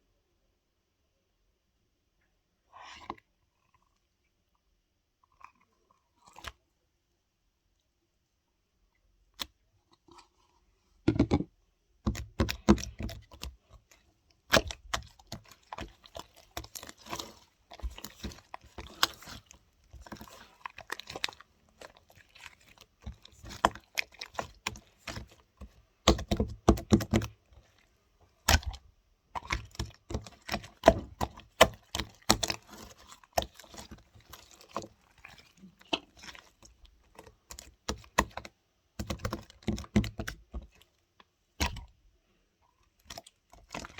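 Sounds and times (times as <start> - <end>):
slime clicking and crackling: 12.1 - 27.8, 28.4 - 28.8, 29.4 - 40.4.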